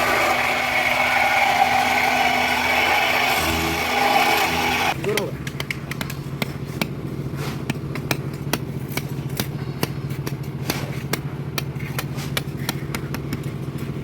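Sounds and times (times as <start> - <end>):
machinery engine running: 0.0 - 5.0.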